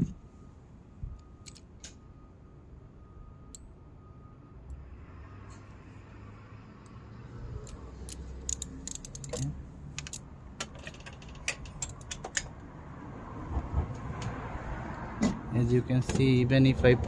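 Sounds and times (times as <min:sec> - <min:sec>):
sharp metallic clicks: 0:01.4 - 0:02.0, 0:07.6 - 0:12.6
ratchet clicking: 0:07.6 - 0:10.2.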